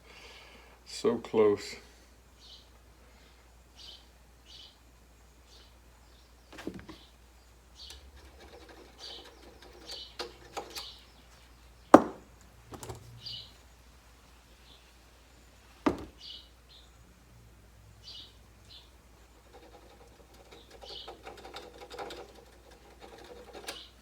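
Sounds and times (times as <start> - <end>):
clicks and knocks of handled parts: 7.8 - 11.0, 12.4 - 13.1, 19.4 - 24.0.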